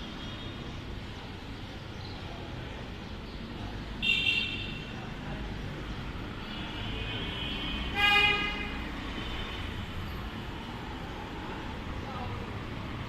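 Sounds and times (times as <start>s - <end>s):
road traffic rumbling: 0.0s - 13.0s
vehicle horn: 6.7s - 8.9s.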